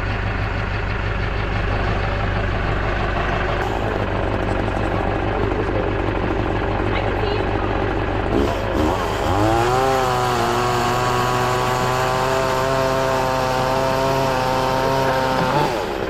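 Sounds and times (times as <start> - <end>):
chainsaw revving: 3.6 - 16.0.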